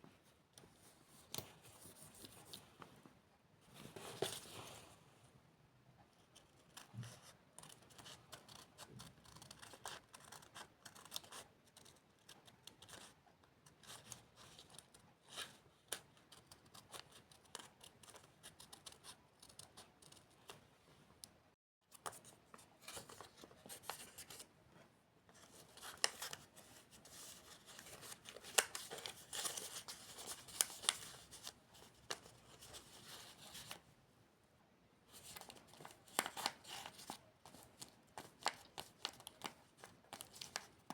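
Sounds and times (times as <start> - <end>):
scissors snipping paper: 7.6 - 13.0
paper rustling: 25.3 - 33.8, 35.1 - 40.9.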